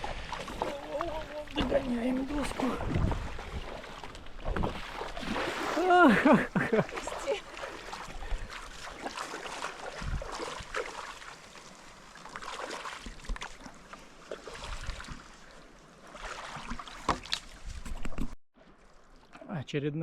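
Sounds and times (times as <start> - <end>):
paddle splashing in water: 0.0 - 19.4
wind rumble on microphone: 2.4 - 3.8, 10.0 - 10.4.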